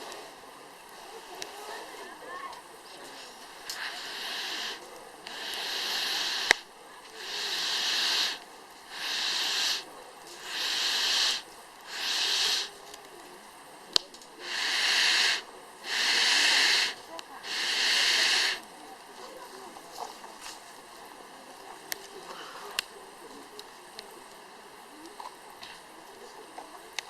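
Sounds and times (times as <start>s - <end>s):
wood fire burning: 0.0s - 27.0s
burning wood popping: 2.5s - 20.8s
hissing rushes of air: 3.1s - 12.8s, 14.3s - 18.6s.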